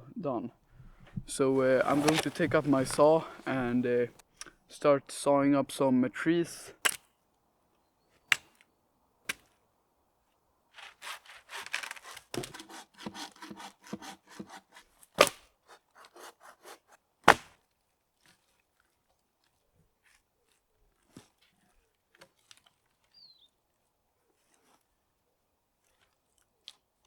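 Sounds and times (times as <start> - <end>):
hand saw cutting wood: 0.8 - 4.0, 10.8 - 17.5.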